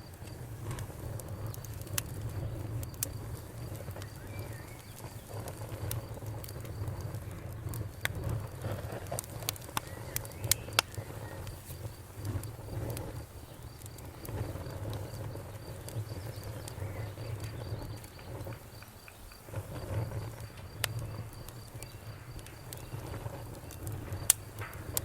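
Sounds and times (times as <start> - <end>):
bonfire crackling and popping: 0.0 - 25.0
crickets chirping: 0.0 - 25.0.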